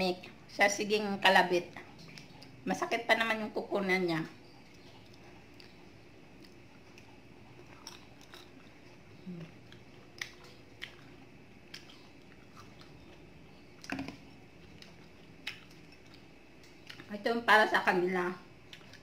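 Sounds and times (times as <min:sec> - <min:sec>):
person chewing mango: 0:01.7 - 0:02.6, 0:04.4 - 0:17.1, 0:18.5 - 0:19.0.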